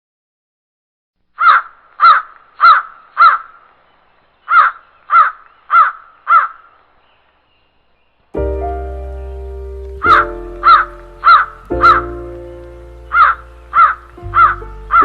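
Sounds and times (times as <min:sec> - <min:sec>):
bird calling harshly: 0:01.4 - 0:07.8, 0:10.1 - 0:15.0.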